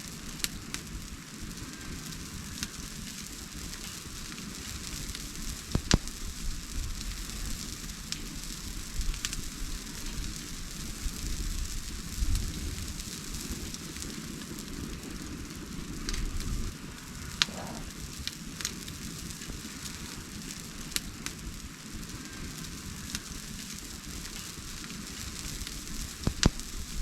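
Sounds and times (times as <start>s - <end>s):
bonfire crackling and popping: 0.0s - 27.0s
low rumble: 17.0s - 18.2s.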